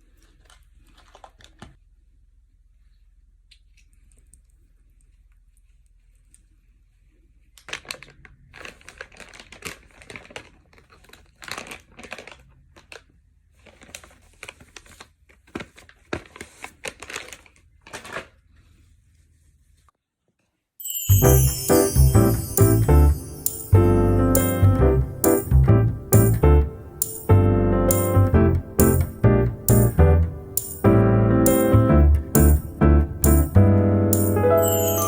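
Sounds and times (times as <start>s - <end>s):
crinkling and rustling: 0.1s - 1.8s, 7.6s - 20.5s
piano music: 20.9s - 35.0s.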